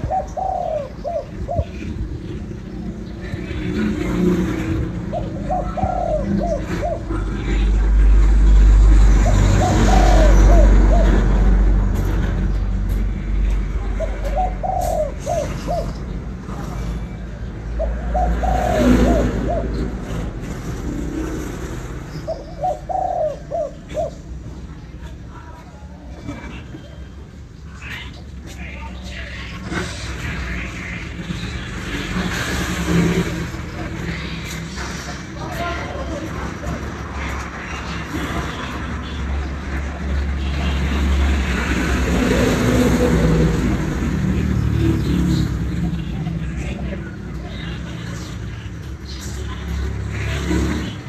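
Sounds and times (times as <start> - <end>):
dove cooing: 0.0 - 11.8, 13.8 - 24.7
engine hum: 0.0 - 51.0.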